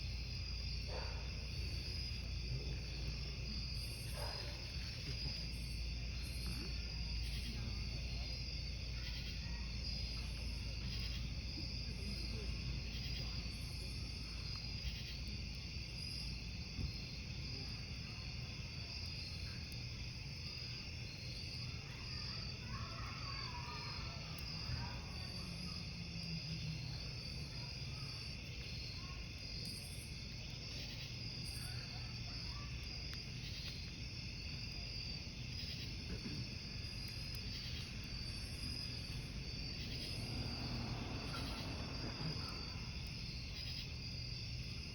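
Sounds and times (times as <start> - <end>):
crackling wood campfire: 0.0 - 44.9
crickets chirping: 0.0 - 44.9
burning wood popping: 32.7 - 44.9.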